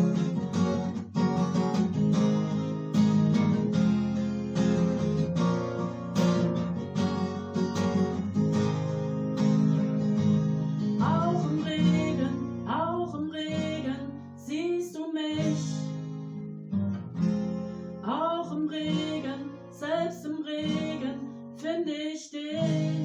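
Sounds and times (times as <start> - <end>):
acoustic guitar strumming: 0.0 - 21.9, 22.5 - 23.0
woman singing: 11.0 - 16.2, 18.0 - 23.0.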